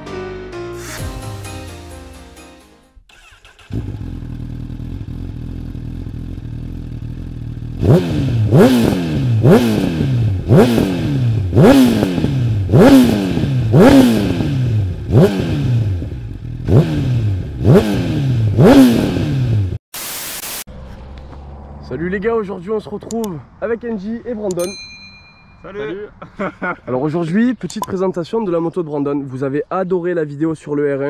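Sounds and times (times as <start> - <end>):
motorcycle engine idling and revving: 3.1 - 19.8, 20.7 - 23.3.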